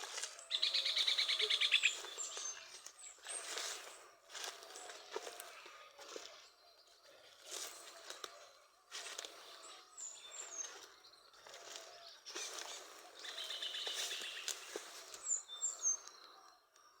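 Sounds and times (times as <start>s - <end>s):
birds chirping: 0.0s - 17.0s
bird trill: 0.4s - 3.8s, 10.0s - 16.6s.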